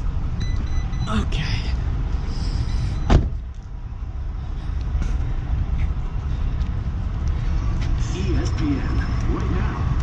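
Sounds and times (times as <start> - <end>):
low rumble of vehicle: 0.0 - 10.0
sharp thump: 3.1 - 3.4.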